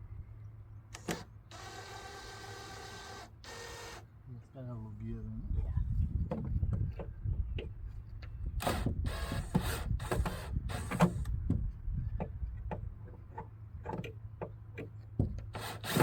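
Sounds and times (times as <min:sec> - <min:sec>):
cordless drill driving screws: 0:01.0 - 0:04.0, 0:08.6 - 0:11.3, 0:15.5 - 0:16.0
wood knocks and clicks: 0:10.9 - 0:15.5.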